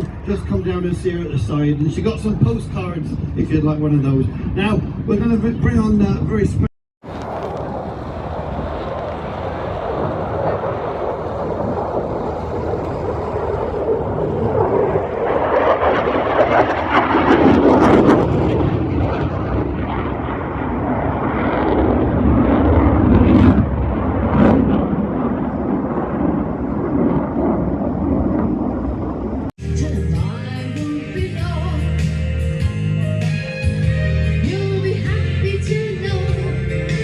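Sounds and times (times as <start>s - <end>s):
aircraft flying past: 7.0s - 29.5s.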